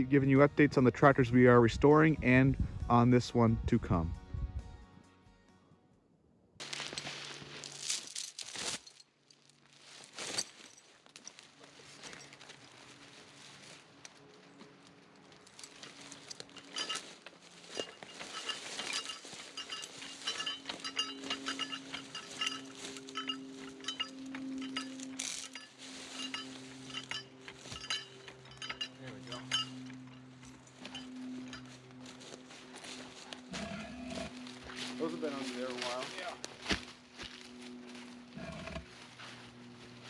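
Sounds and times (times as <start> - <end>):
metal clinks and knocks: 6.6 - 9.1, 10.0 - 11.4, 15.3 - 32.3
low mechanical hum: 6.6 - 40.0.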